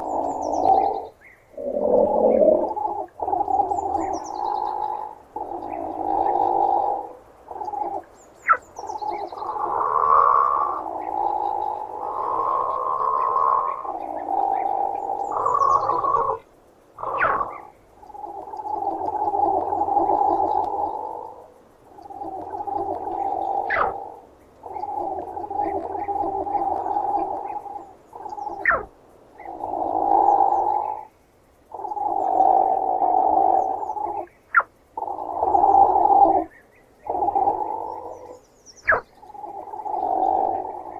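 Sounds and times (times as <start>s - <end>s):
platypus growling: 0.0s - 3.6s.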